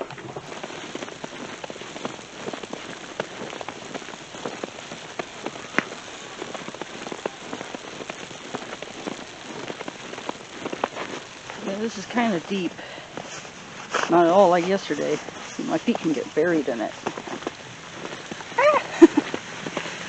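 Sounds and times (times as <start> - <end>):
footsteps crunching in snow: 0.0 - 20.0.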